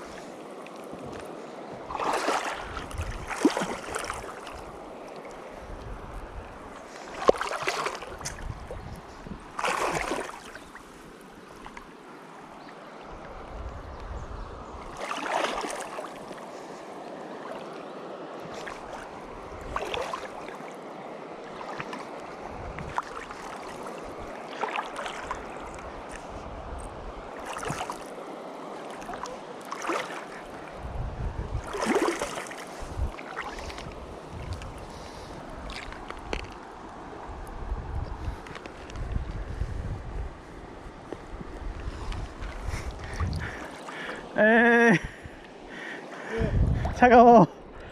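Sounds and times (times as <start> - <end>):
splashes of wading in water: 0.0 - 5.8, 6.6 - 12.0, 14.8 - 17.8, 18.4 - 26.4, 27.2 - 30.9, 31.5 - 37.1, 42.1 - 44.4
stream running: 0.0 - 47.9
wind rumbling on microphone: 0.8 - 11.8, 13.0 - 16.3, 18.5 - 20.5, 21.6 - 24.4, 25.0 - 28.1, 30.5 - 45.5, 46.2 - 47.9.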